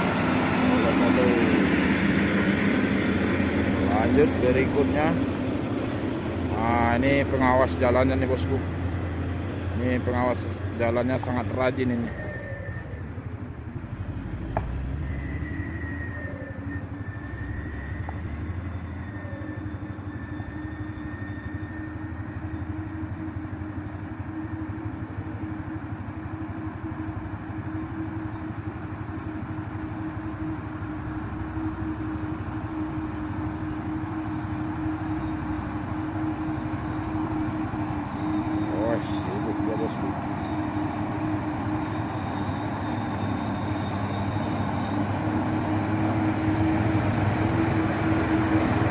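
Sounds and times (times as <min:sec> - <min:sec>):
vehicle engine droning: 0:00.0 - 0:48.9.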